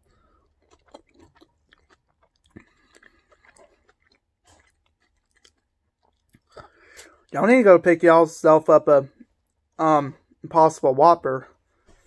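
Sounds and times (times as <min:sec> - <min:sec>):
chewing with wet clicks: 0:00.0 - 0:07.4.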